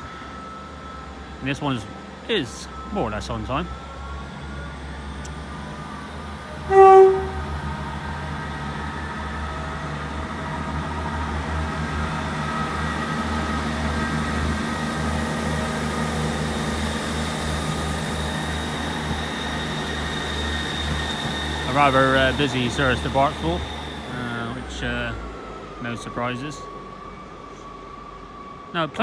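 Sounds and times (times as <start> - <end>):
diesel train engines running: 0.0 - 29.0
train horn blast: 6.6 - 7.9.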